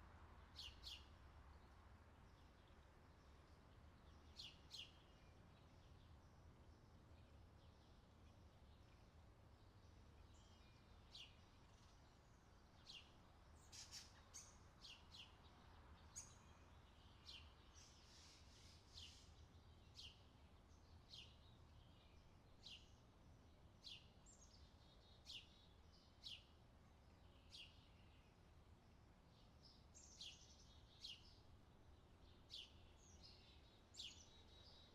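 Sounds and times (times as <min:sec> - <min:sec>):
bird chirping: 0:10.0 - 0:23.0, 0:27.1 - 0:28.4, 0:29.3 - 0:34.9.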